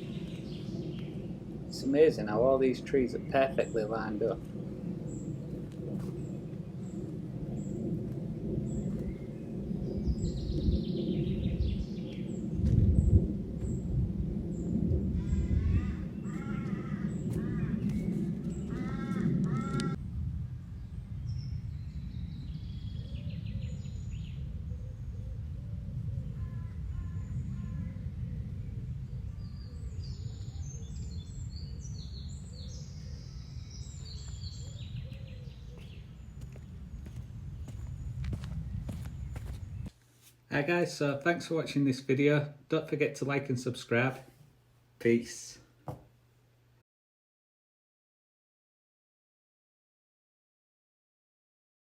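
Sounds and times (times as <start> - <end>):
bird singing: 0.0 - 8.0, 8.6 - 12.7, 14.5 - 20.0, 20.7 - 39.9
low rumble: 0.0 - 40.0
wind buffeting microphone: 0.0 - 40.0
harsh cawing bird calls: 15.2 - 20.0, 26.2 - 28.0, 29.5 - 39.6.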